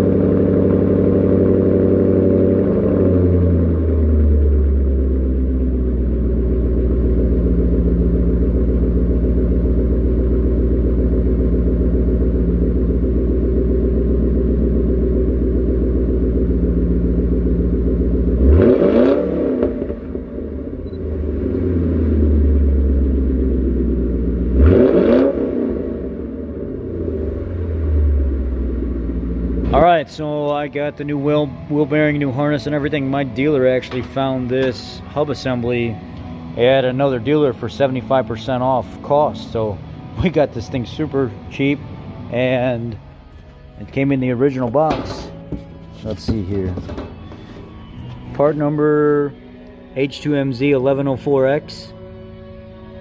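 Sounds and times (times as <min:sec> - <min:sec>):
engine revs blipped: 0:00.0 - 0:29.8
car engine idling: 0:00.0 - 0:53.0.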